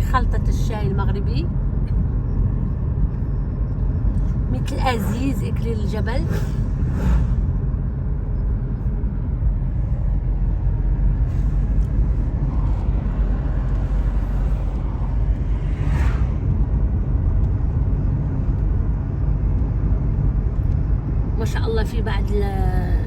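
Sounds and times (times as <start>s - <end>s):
car engine and tyre rumble: 0.0s - 23.0s
whoosh: 6.2s - 8.0s, 11.2s - 17.1s.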